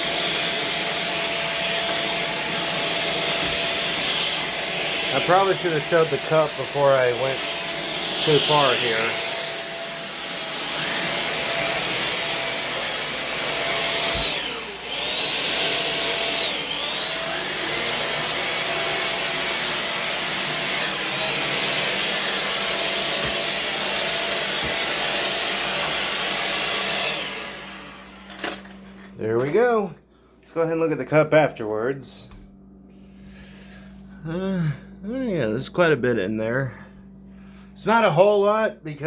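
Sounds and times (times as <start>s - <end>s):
stick vacuum whining: 0.0s - 29.8s.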